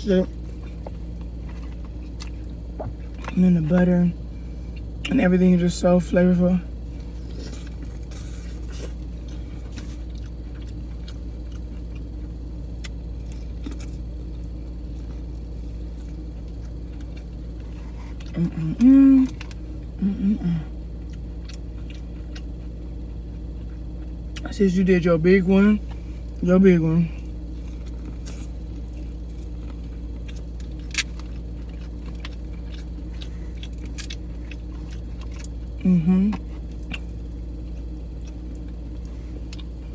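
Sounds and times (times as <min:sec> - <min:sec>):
steady low hum: 0:00.0 - 0:39.9
crab shell clicks and crunches: 0:06.8 - 0:18.6, 0:21.0 - 0:24.5, 0:27.3 - 0:39.9.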